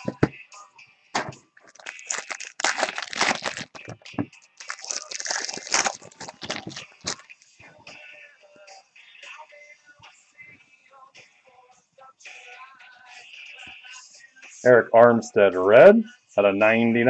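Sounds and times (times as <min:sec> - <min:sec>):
cards being handled: 0:01.6 - 0:07.3
foil wrappers crinkling and tearing: 0:01.6 - 0:07.4.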